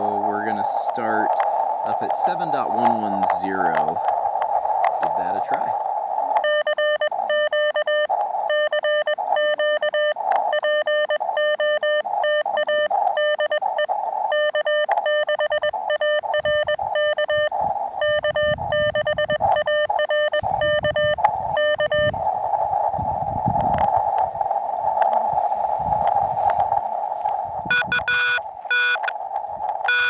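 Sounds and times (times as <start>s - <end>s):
radio band noise hissing: 0.0s - 6.5s
morse code beeping tone: 6.4s - 13.6s, 14.3s - 22.2s, 27.7s - 29.0s.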